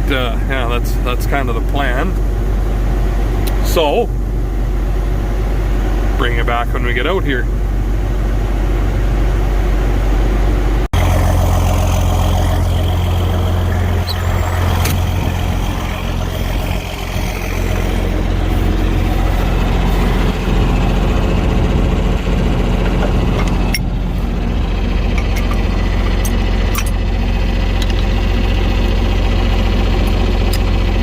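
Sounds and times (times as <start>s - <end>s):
tractor engine droning: 0.0s - 31.0s.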